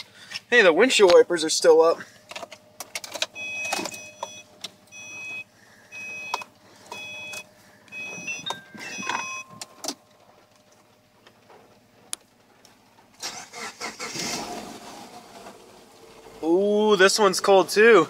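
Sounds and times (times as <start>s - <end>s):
dashboard warning chime: 3.4s - 10.0s.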